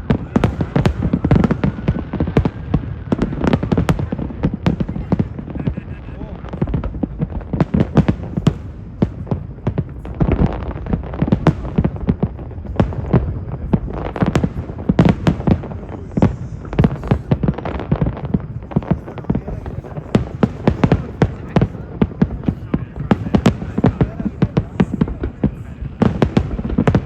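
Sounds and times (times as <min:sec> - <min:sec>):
fireworks bangs and crackles: 0:00.0 - 0:27.0.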